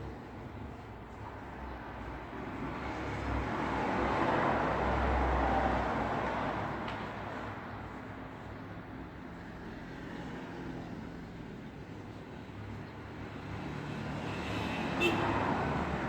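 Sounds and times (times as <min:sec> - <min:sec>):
road traffic hum: 0:00.1 - 0:16.0.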